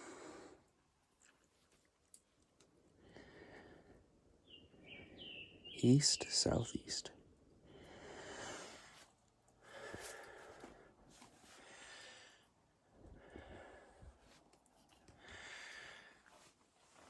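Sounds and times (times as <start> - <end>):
person breathing heavily: 0.0 - 0.6, 3.0 - 4.1, 7.6 - 14.5, 15.1 - 16.5.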